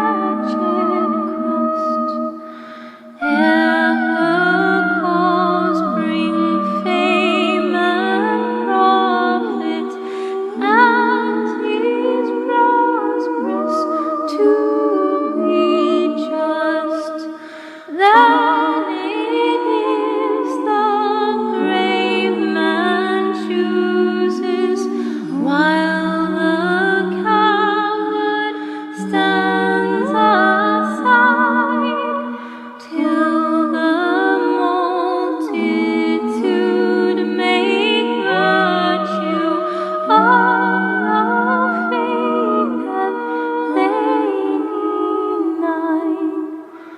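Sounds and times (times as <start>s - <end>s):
choir singing a hymn: 0.0s - 46.9s.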